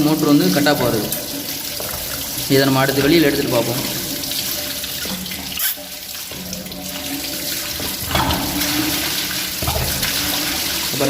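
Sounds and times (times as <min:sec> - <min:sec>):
water gushing from tank: 0:00.0 - 0:11.0.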